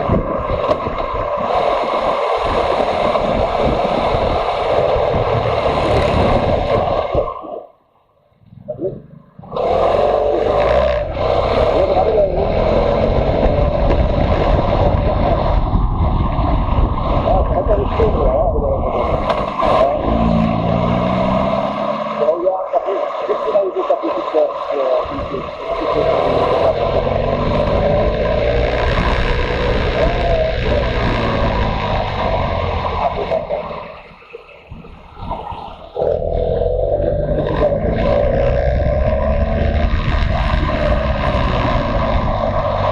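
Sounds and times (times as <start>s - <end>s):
motorcycle engine drone: 0.0s - 7.6s, 8.4s - 42.9s
wind rumble on microphone: 0.0s - 7.6s, 8.4s - 21.9s, 24.8s - 42.9s
motorcycle engine running: 25.6s - 33.3s.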